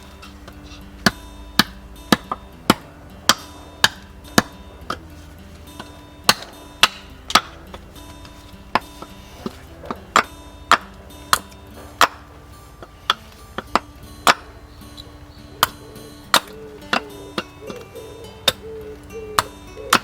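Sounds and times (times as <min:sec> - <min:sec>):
sharp chopping strikes: 0:01.0 - 0:05.1, 0:05.8 - 0:07.8, 0:08.7 - 0:14.6, 0:15.6 - 0:17.8.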